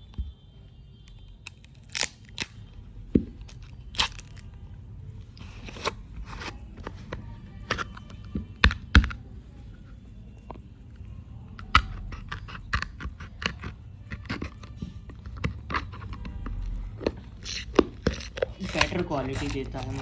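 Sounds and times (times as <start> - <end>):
packaging clicks and crinkles: 1.1 - 4.6, 11.6 - 20.0
packaging rustling: 17.4 - 20.0.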